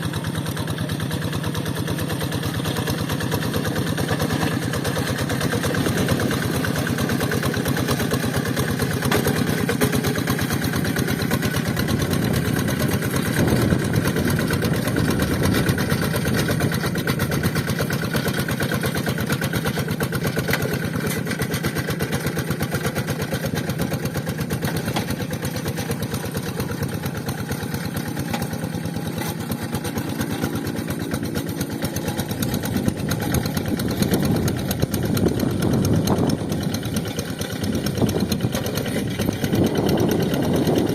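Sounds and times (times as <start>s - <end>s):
diesel engine chugging: 0.0s - 40.9s.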